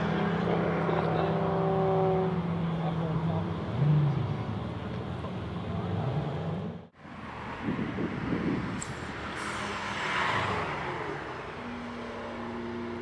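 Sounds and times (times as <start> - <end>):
turbocharged car accelerating past: 9.2 - 13.0.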